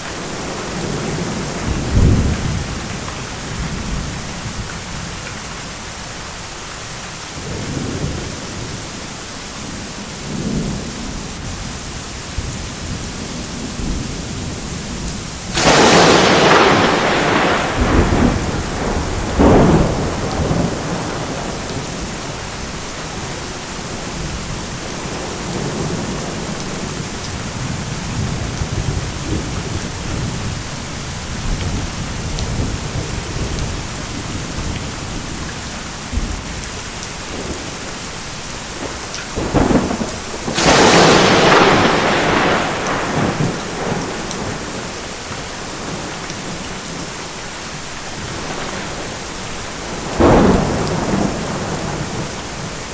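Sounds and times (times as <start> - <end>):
low rolling thunder: 0.0 - 5.2, 10.2 - 37.8, 38.8 - 47.1, 48.2 - 52.9
heavy rain: 0.0 - 52.9
sharp thunderclap: 0.2 - 4.2, 15.5 - 22.3, 38.8 - 44.8, 49.9 - 52.9.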